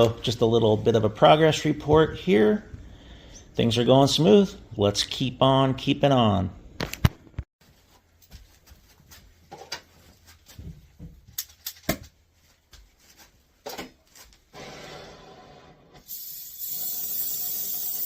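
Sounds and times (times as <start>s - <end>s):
steady hiss: 16.0s - 18.0s.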